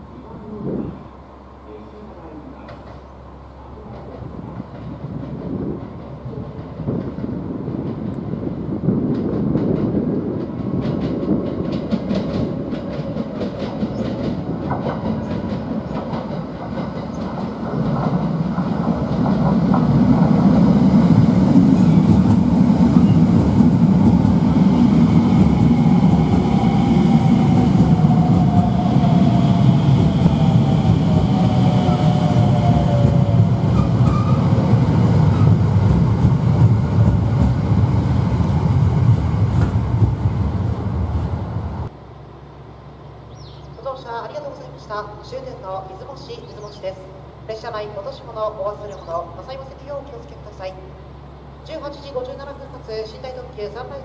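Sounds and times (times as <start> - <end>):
train wheel-on-rail rumble: 0.0 - 54.0
clickety-clack over rail joints: 2.6 - 3.1, 3.8 - 26.6, 33.8 - 34.4, 35.3 - 38.5, 39.4 - 40.5.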